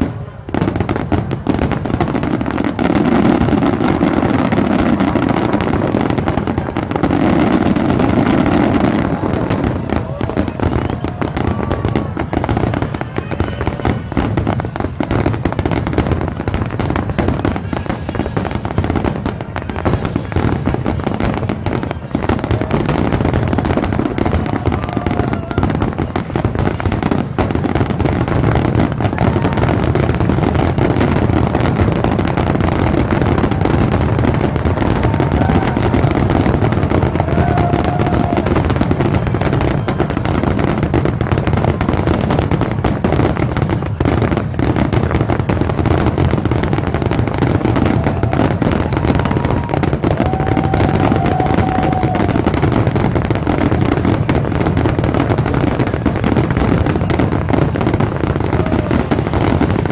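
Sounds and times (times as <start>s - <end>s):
fireworks booming and crackling: 0.0s - 59.9s.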